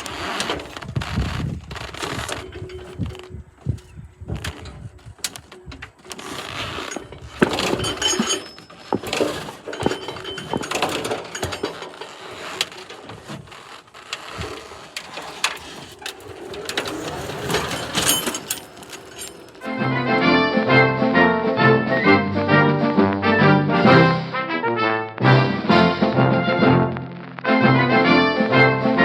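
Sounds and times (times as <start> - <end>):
metal clanks and rattles: 0.0 - 20.4.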